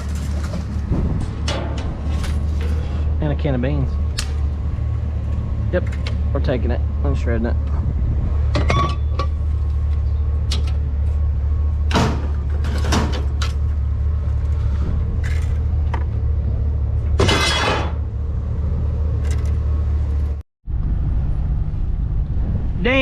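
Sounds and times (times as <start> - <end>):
scrap metal clanking and rattling: 0.0 - 3.3, 11.8 - 13.8, 17.0 - 18.1.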